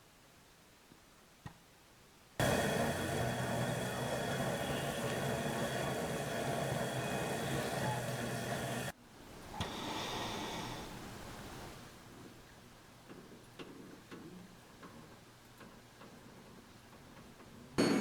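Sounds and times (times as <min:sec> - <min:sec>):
motor-driven machine humming: 0:02.4 - 0:08.9
quieter machine sound: 0:02.4 - 0:08.9.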